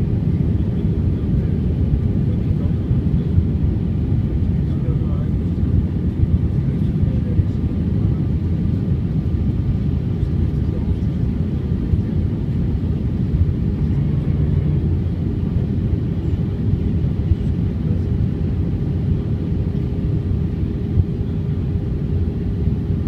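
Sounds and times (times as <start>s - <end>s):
airliner engines and rushing air: 0.0s - 23.0s
faint steady hum: 13.2s - 15.6s.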